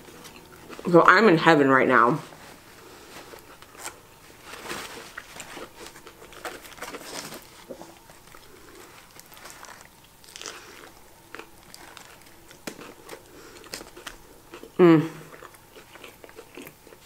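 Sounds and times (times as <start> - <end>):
chewing a burger: 0.0 - 0.9, 5.1 - 17.0
paper rustling: 2.2 - 8.2
biting into a burger: 5.1 - 17.0.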